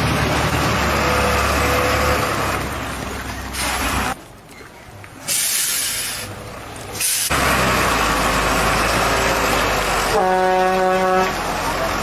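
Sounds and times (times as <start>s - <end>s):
truck engine and road rumble: 0.0s - 12.0s
truck air brake hiss: 5.3s - 6.3s, 7.0s - 7.4s.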